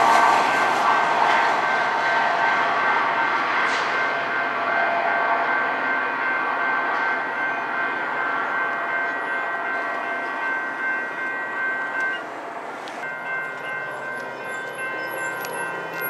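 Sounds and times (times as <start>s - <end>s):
high ringing tones: 0.0s - 16.0s
train rolling noise: 0.0s - 16.0s.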